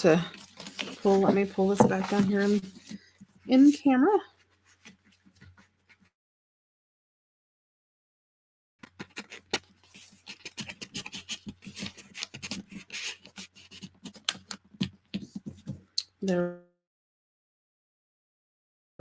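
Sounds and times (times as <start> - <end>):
paper rustling on a table: 0.0 - 3.2, 8.8 - 15.8.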